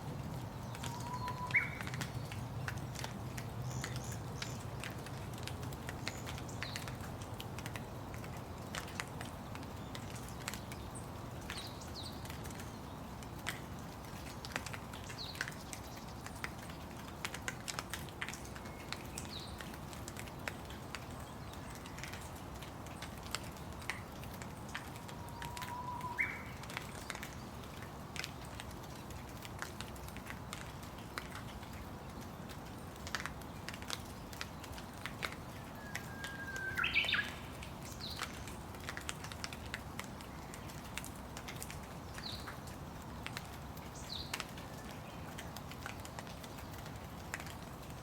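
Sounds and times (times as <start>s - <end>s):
steady rain: 0.0s - 48.0s
raindrops tapping: 0.1s - 48.0s
whistled bird call: 35.8s - 37.4s.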